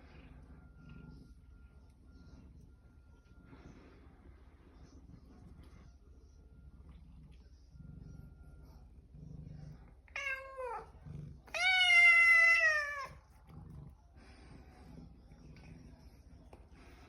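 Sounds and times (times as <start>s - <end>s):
cat meowing: 10.2s - 10.9s, 11.5s - 13.2s.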